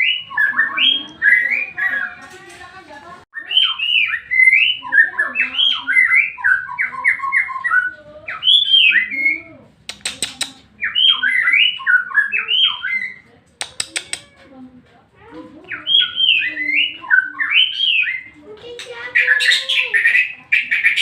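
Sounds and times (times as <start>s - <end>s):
bird singing whistled phrases: 0.0s - 2.2s, 3.4s - 9.4s, 10.8s - 13.2s, 15.7s - 18.4s
sharp clicks: 9.8s - 10.7s, 13.5s - 14.3s.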